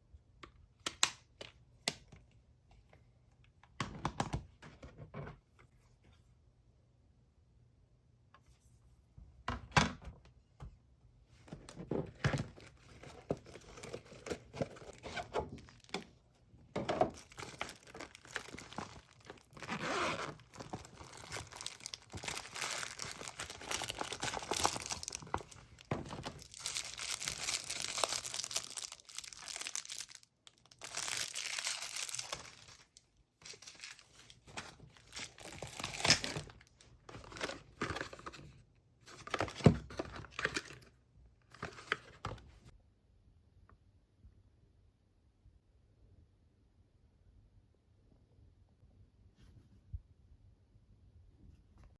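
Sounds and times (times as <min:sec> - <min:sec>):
packaging rustling and tearing: 0:12.3 - 0:16.1, 0:16.9 - 0:38.4.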